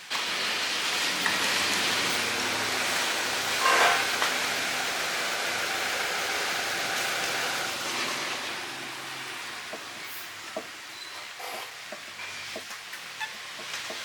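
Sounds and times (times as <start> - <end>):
loud steady hiss: 0.0 - 14.0
high-pitched squeal: 2.9 - 5.0.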